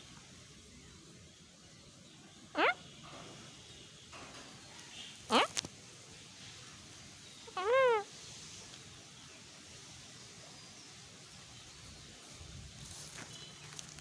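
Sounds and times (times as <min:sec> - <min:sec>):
faint background hiss: 0:00.0 - 0:14.0
parrot call: 0:02.6 - 0:02.9, 0:05.3 - 0:05.7, 0:07.4 - 0:08.2.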